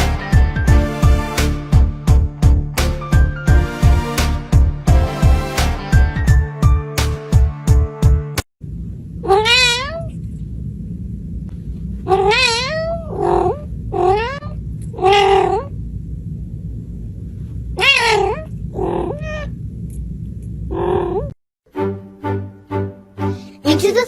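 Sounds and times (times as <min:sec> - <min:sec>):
low hum: 0:08.6 - 0:21.3
cat meowing: 0:09.2 - 0:10.2, 0:12.1 - 0:15.7, 0:17.8 - 0:19.6.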